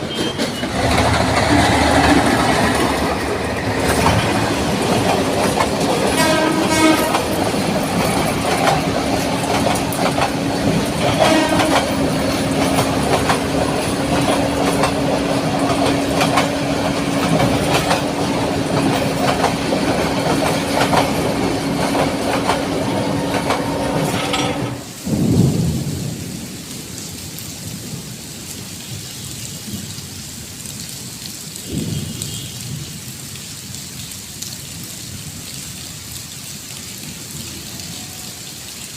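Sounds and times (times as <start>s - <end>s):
train clickety-clack on rails: 0.0s - 24.9s
steady rain: 0.0s - 38.9s.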